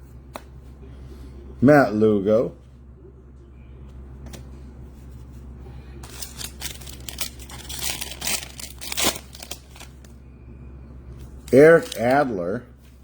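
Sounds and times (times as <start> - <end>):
steady low hum: 0.0 - 13.0
wrapper crinkling and tearing: 6.0 - 10.1, 11.4 - 12.3.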